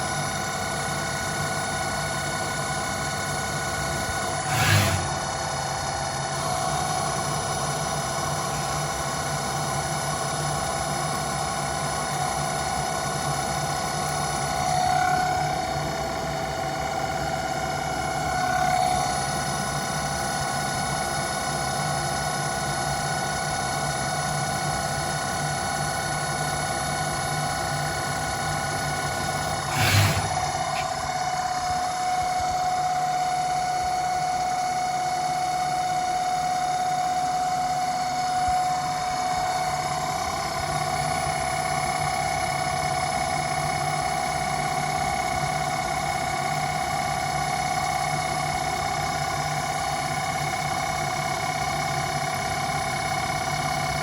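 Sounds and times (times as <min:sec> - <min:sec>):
lathe motor whine: 0:00.0 - 0:54.0.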